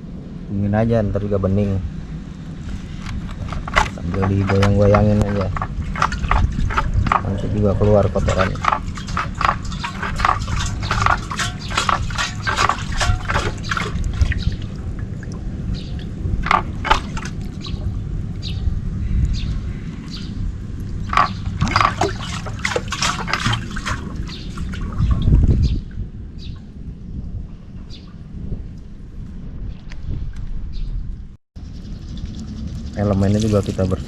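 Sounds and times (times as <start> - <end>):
water sloshing and glugging: 2.6 - 18.5, 19.7 - 26.0, 32.0 - 34.0.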